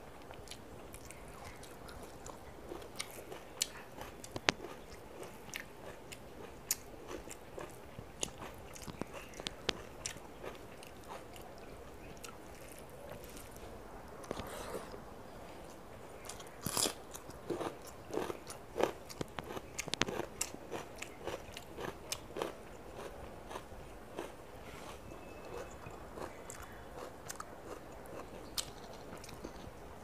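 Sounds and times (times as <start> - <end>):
chewing with wet mouth clicks: 0.2 - 13.6, 15.7 - 29.7
small crunches: 16.3 - 23.6.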